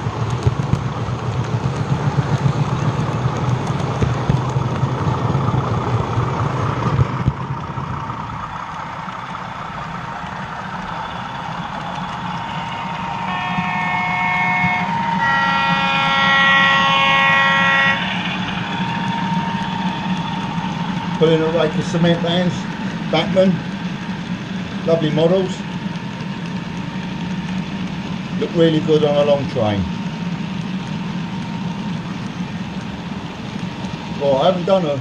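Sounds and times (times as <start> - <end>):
model train rumbling on track: 0.0 - 35.0
model locomotive two-tone horn: 11.9 - 20.3.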